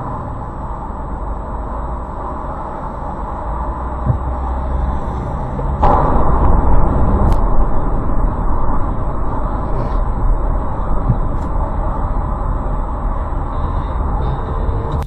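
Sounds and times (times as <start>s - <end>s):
car engine and road noise: 0.0s - 15.0s
low thump: 4.0s - 4.6s, 5.6s - 13.0s.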